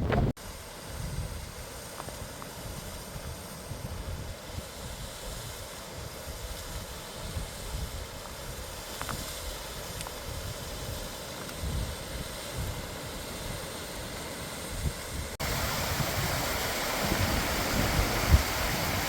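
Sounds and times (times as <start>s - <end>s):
wind on microphone: 0.0s - 13.7s, 14.6s - 19.0s
waterfall rushing: 15.4s - 19.0s.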